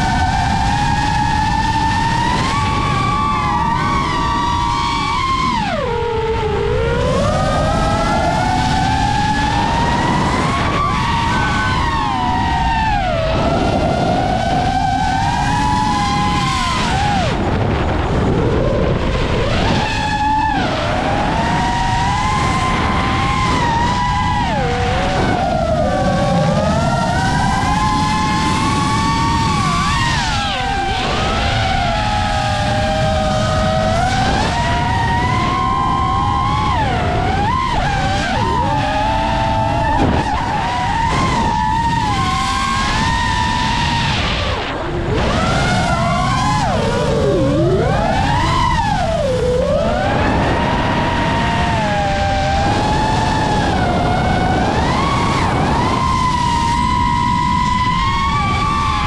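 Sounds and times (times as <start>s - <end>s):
quadcopter motors whining: 0.0s - 59.0s
wind rush: 0.0s - 59.0s.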